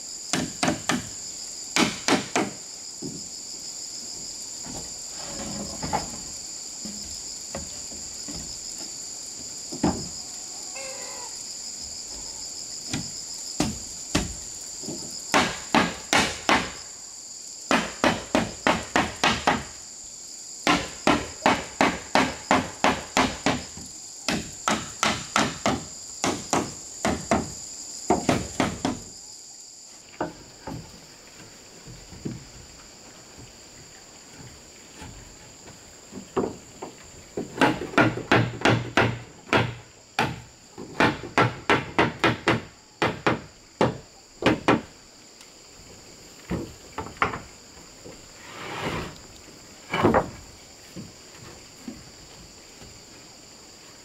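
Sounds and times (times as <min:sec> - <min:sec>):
hammer striking wood: 0:00.3 - 0:01.1, 0:01.8 - 0:02.6, 0:15.3 - 0:16.8, 0:17.7 - 0:19.7, 0:20.6 - 0:23.6, 0:24.3 - 0:29.1, 0:37.6 - 0:44.9
high-pitched insect drone: 0:02.8 - 0:15.2.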